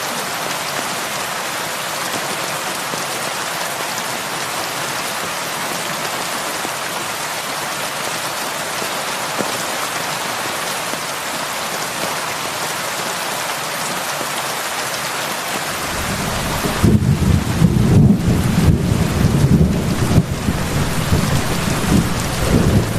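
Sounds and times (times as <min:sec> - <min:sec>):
heavy rain falling: 0:00.0 - 0:22.9
thunder rumbling: 0:15.7 - 0:22.9.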